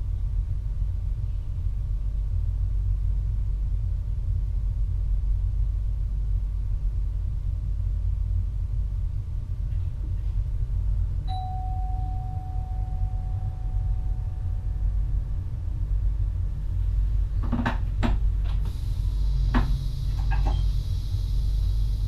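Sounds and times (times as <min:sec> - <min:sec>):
electric train rumble: 0:00.0 - 0:22.0
chime tone ringing: 0:11.3 - 0:15.2.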